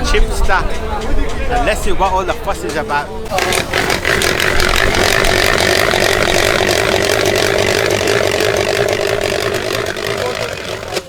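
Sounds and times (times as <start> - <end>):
potato cutter motor drone: 3.3 - 11.0.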